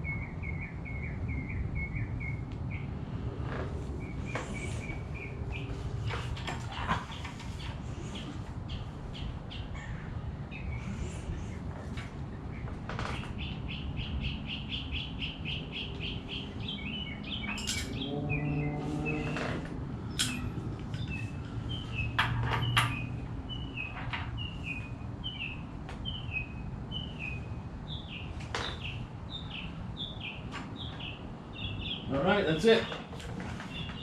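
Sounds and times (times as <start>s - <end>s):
small songbird chirping: 0.0s - 3.0s, 3.9s - 6.4s, 12.4s - 19.5s, 20.1s - 34.0s.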